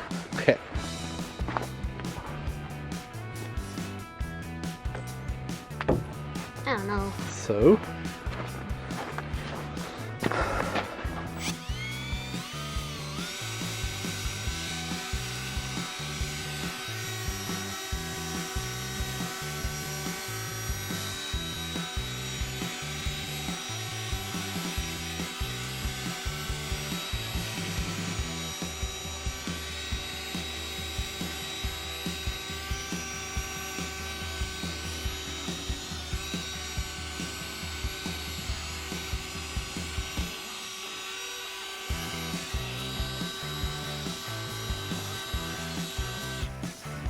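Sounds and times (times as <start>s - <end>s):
background music with a beat: 0.0s - 16.0s, 41.9s - 47.0s
cordless drill polishing plastic: 9.1s - 47.0s.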